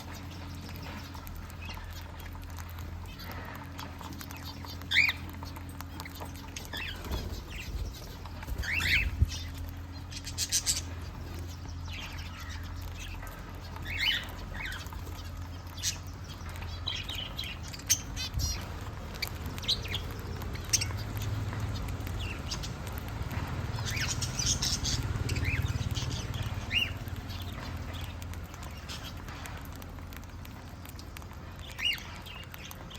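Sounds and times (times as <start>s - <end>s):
birds chirping and squawking: 0.0s - 32.9s
low steady hum: 0.0s - 32.9s.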